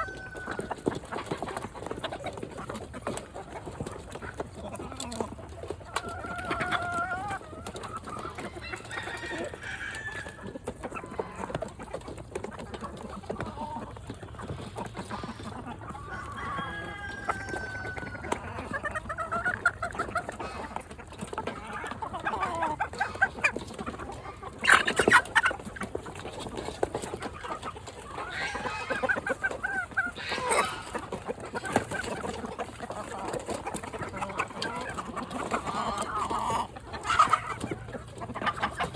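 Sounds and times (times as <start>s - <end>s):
chickens clucking: 0.0s - 38.9s
chicken squawk: 13.0s - 38.9s.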